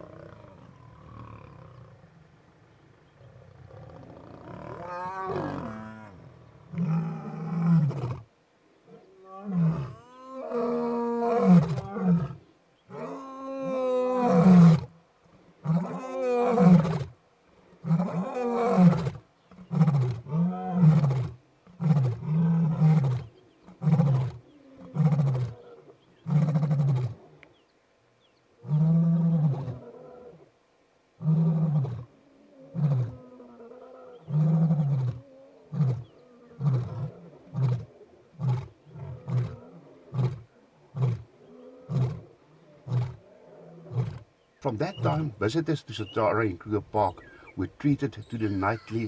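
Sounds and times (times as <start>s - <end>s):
lion roaring: 31.2s - 45.6s.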